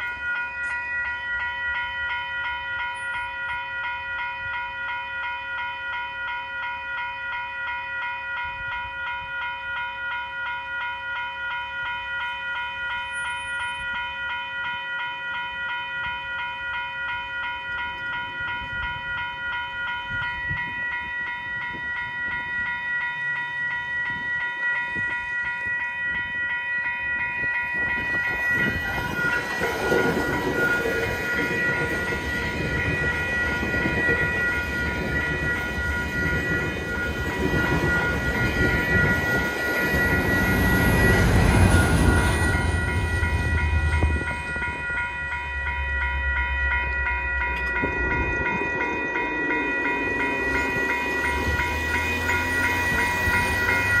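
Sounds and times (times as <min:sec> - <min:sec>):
level-crossing warning bell: 0:00.0 - 0:54.0
train rumbling and clattering: 0:12.6 - 0:54.0
high whine sliding down: 0:28.1 - 0:54.0.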